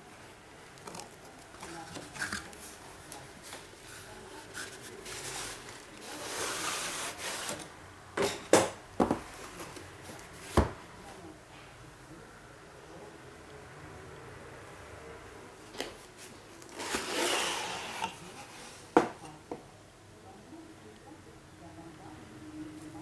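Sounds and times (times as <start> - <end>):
hands rubbing packaging: 0.8 - 7.7.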